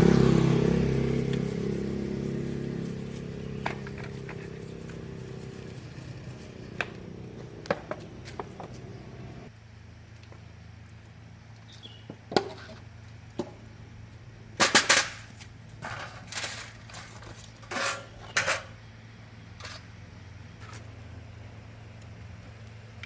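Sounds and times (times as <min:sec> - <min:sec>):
steady low hum: 0:00.0 - 0:11.6
metal tools clanking: 0:15.8 - 0:18.8.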